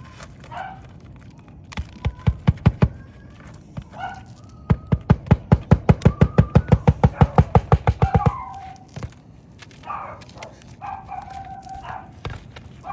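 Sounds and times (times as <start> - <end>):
hammer blows: 4.6 - 8.6.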